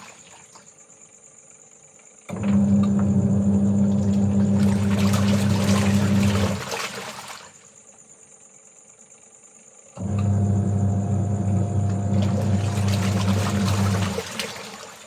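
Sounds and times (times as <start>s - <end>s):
water splashing: 0.0s - 0.7s, 4.0s - 7.7s, 12.1s - 15.0s
high insect trill: 0.0s - 2.3s, 7.3s - 10.0s
washing machine pump humming: 2.3s - 7.9s, 10.0s - 15.0s.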